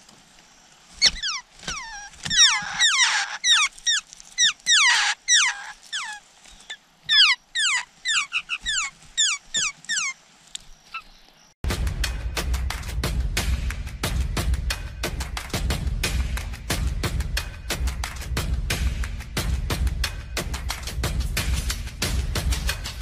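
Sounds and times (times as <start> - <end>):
nestlings begging calls: 1.0 - 11.5.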